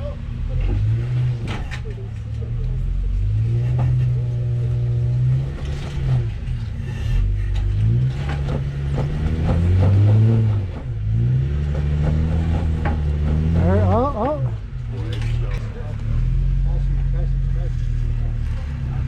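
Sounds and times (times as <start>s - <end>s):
off-road vehicle engine revving: 0.0s - 19.0s
knocks from rocks and chassis: 0.6s - 2.0s, 5.4s - 15.7s.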